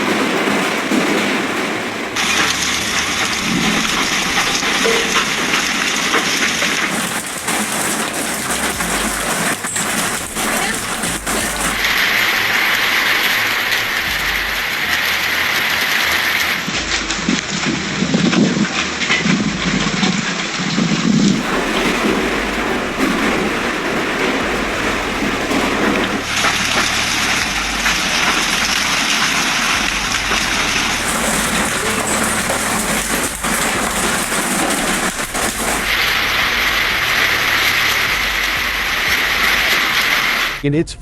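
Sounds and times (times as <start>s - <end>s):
hail and heavy rain pelting: 0.0s - 16.8s, 17.5s - 40.6s.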